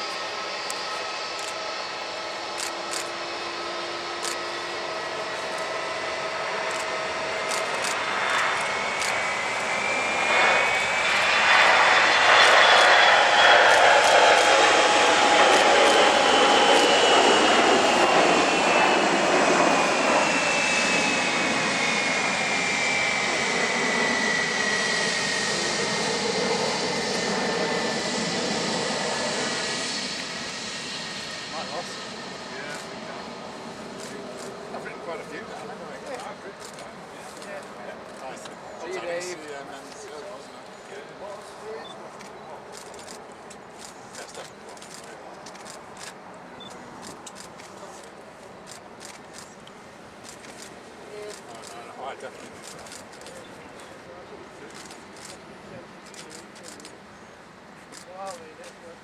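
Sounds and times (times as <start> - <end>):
jet engines whining: 0.0 - 36.3.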